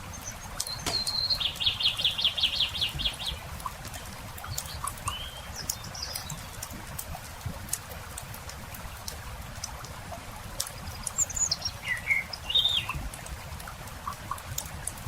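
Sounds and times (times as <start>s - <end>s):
songbird singing: 0.0s - 6.8s, 10.7s - 13.0s
campfire crackling: 0.0s - 15.0s.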